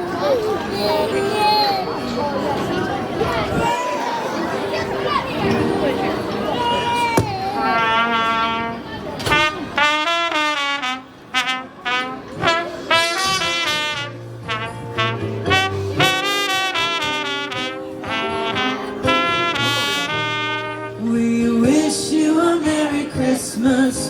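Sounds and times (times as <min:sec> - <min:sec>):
brass band melody: 0:07.6 - 0:21.3.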